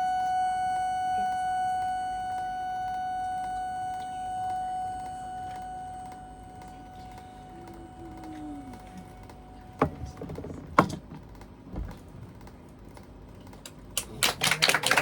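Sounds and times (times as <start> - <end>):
held synthesizer tone: 0.0 - 10.3.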